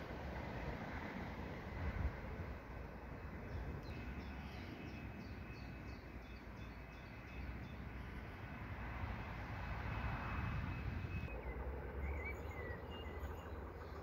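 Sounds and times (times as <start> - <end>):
low outdoor rumble: 10.3 - 14.0
songbird chirping: 10.7 - 14.0.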